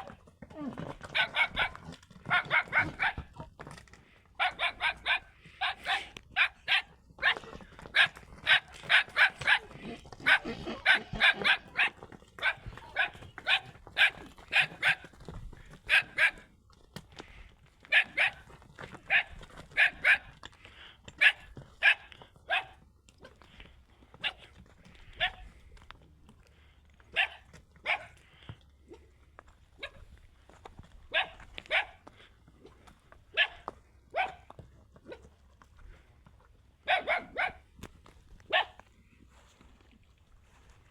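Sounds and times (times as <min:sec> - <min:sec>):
dog barking: 0:01.1 - 0:03.3, 0:04.4 - 0:15.0, 0:15.9 - 0:16.4, 0:17.9 - 0:18.4, 0:19.1 - 0:20.3, 0:21.2 - 0:22.8, 0:25.2 - 0:25.4, 0:27.1 - 0:28.2, 0:29.8 - 0:30.0, 0:31.1 - 0:32.0, 0:33.3 - 0:34.4, 0:36.8 - 0:37.6, 0:38.5 - 0:38.8.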